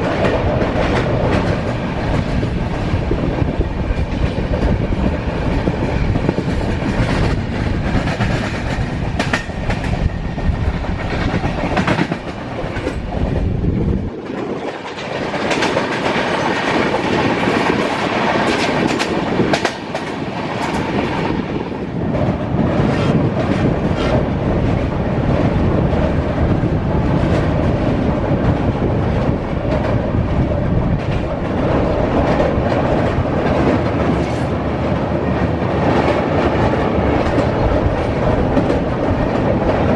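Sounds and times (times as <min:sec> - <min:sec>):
deep train rumble: 0:00.0 - 0:39.9.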